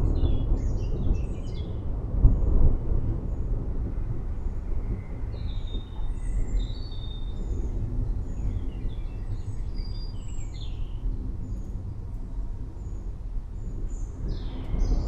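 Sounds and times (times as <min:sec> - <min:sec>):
low rumble: 0:00.0 - 0:15.0
birds chirping and whistling: 0:05.3 - 0:11.6.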